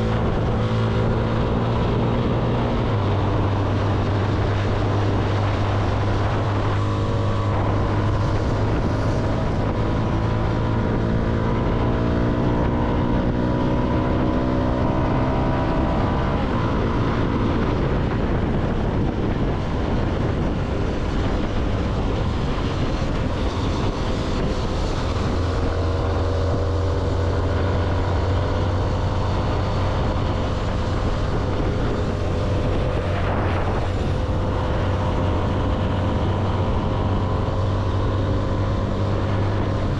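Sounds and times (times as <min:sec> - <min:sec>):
motorcycle engine accelerating: 0:00.0 - 0:39.9
road noise: 0:00.0 - 0:39.9
wind noise: 0:00.0 - 0:39.9.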